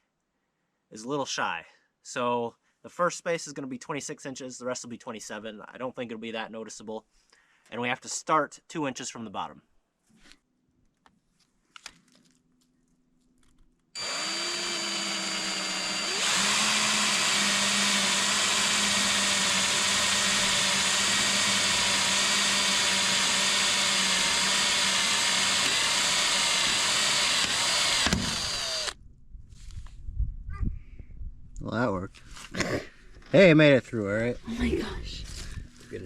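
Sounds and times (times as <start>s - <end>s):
power drill drilling into steel: 14.0s - 29.0s.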